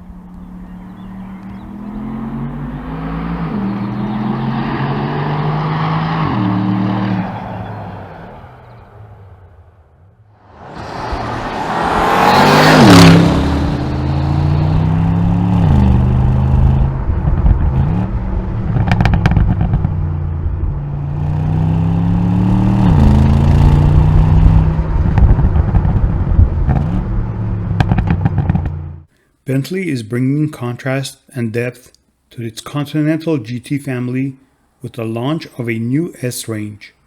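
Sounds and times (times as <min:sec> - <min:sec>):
exhaust crackle: 0:00.0 - 0:05.5, 0:08.5 - 0:29.1
car engine accelerating hard: 0:00.0 - 0:09.8, 0:10.4 - 0:29.1
car passing close: 0:00.0 - 0:29.0.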